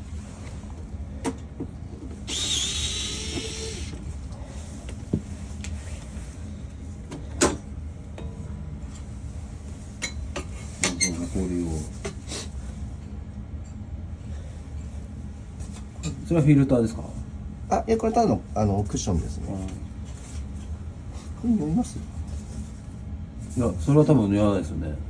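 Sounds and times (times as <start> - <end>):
steady low hum: 0.0 - 25.0
power drill running: 2.2 - 4.0.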